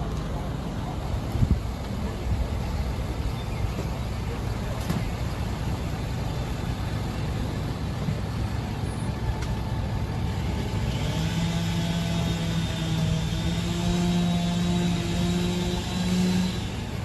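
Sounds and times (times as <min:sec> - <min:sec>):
steady droning hum: 0:00.0 - 0:17.0
vehicle engine rumbling: 0:00.0 - 0:17.0.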